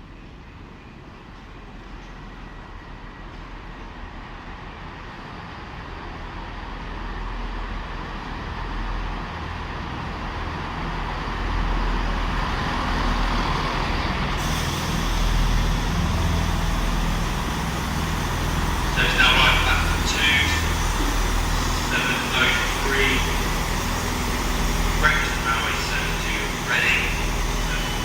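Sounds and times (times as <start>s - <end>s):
train rumble: 0.0s - 28.0s
sudden hiss: 14.4s - 28.0s.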